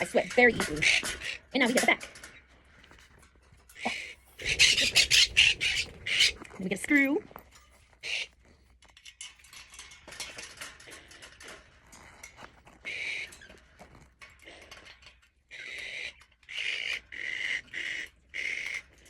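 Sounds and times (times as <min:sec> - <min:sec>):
parrots squawking: 0:00.0 - 0:02.1, 0:03.7 - 0:06.5, 0:08.0 - 0:08.4, 0:12.8 - 0:13.5, 0:15.5 - 0:19.0
cage parts clicking and rattling: 0:00.0 - 0:19.0.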